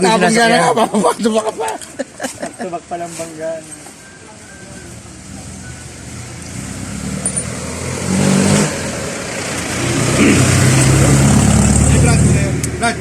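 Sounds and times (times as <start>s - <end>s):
vehicle engine approaching: 4.5s - 13.0s.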